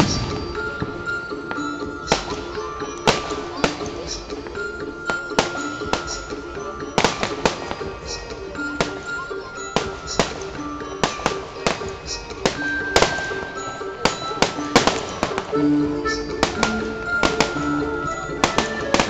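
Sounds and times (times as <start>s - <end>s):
fireworks bangs: 0.0s - 4.3s, 7.0s - 9.2s, 9.8s - 15.6s, 16.3s - 19.0s
music with held notes: 0.0s - 19.0s.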